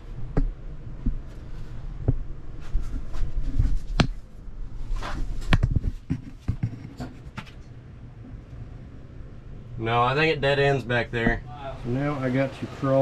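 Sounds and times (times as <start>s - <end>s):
low rumble: 0.0s - 6.5s, 7.6s - 12.8s
knocks and scrapes on rock: 4.9s - 7.6s.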